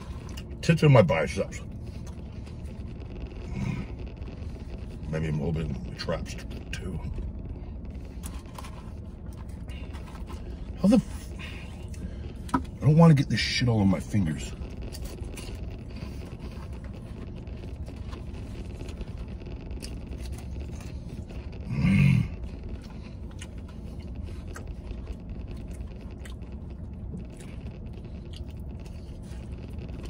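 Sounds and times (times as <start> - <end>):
close chewing and mouth sounds: 0.0 - 30.0
hum through closed lips: 1.6 - 5.1, 14.4 - 30.0.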